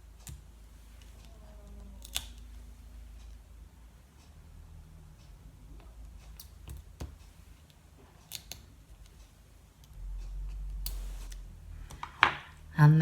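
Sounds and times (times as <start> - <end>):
scissors snipping: 2.0 - 2.4.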